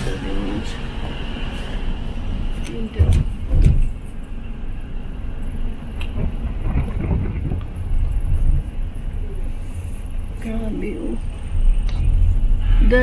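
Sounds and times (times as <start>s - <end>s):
road traffic rumble: 0.0s - 13.0s
wind on microphone: 6.0s - 10.0s.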